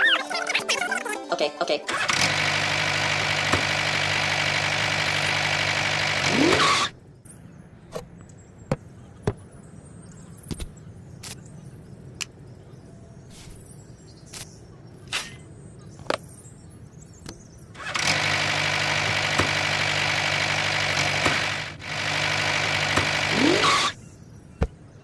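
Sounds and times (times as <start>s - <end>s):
motor humming: 1.9s - 7.0s, 17.8s - 24.0s.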